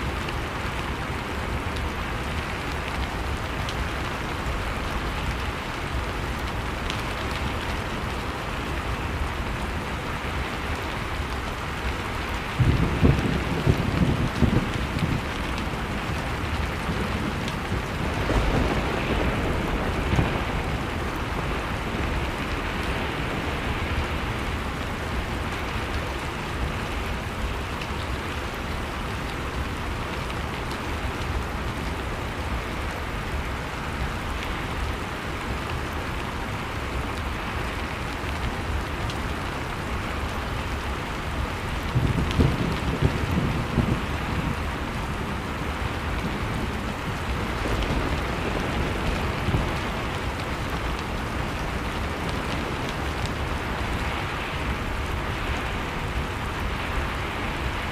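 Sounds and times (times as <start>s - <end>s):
fire popping: 10.2s - 26.2s
storm wind rushing: 12.4s - 25.2s.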